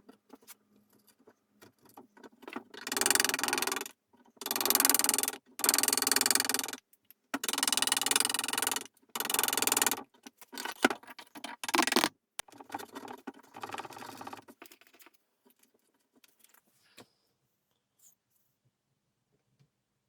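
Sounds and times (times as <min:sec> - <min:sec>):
small objects clicking and clinking: 0:11.6 - 0:12.1.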